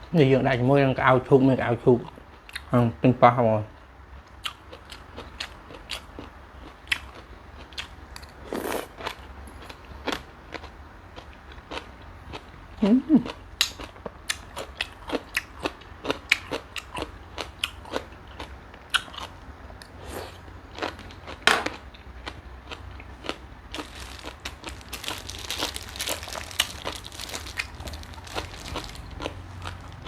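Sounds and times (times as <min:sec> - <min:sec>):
person crunching and chewing prawns: 0:03.7 - 0:30.0.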